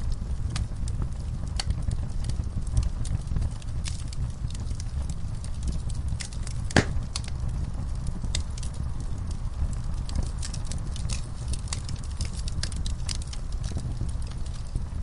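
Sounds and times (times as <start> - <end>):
low steady rumble: 0.0 - 15.0
wood fire crackling: 0.0 - 15.0.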